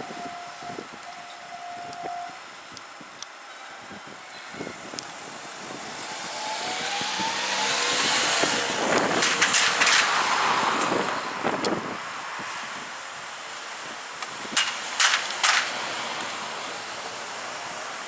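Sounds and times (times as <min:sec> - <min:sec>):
electric train rumbling past: 0:00.0 - 0:18.0
rising train whine: 0:00.0 - 0:18.0.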